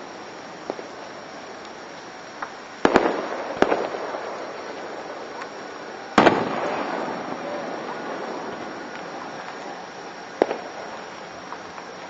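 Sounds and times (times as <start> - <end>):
faint fireworks pops: 0.0 - 12.0
fireworks bangs with rumble: 2.8 - 11.7.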